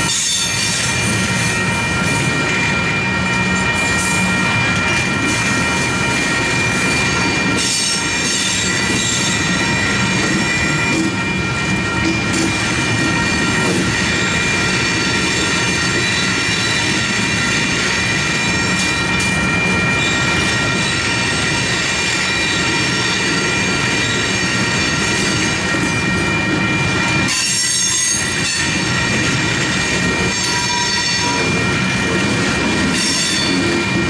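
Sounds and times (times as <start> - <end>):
train wheels rumbling and rattling: 0.0 - 34.0.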